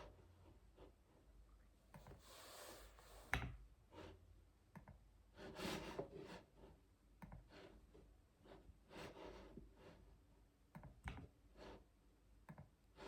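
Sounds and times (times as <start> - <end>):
soft rubbing noises: 2.0 - 3.3.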